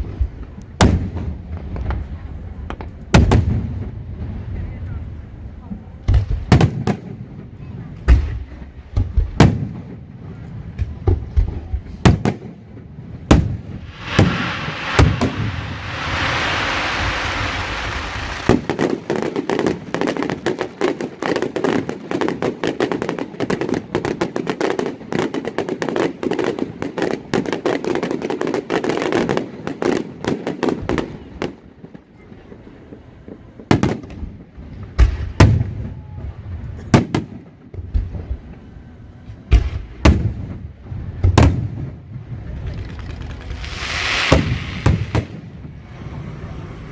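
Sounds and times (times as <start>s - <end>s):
fireworks booming: 0.0s - 4.5s, 5.7s - 27.6s, 39.5s - 46.9s
rapid fireworks crackling: 0.0s - 31.7s, 39.5s - 46.9s
fireworks hissing rush: 13.2s - 20.8s, 42.7s - 46.9s.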